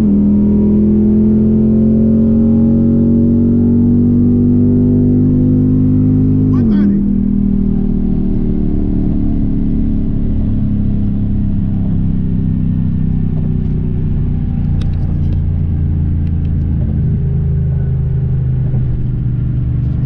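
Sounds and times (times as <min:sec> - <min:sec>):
car engine and exhaust drone: 0:00.0 - 0:20.0.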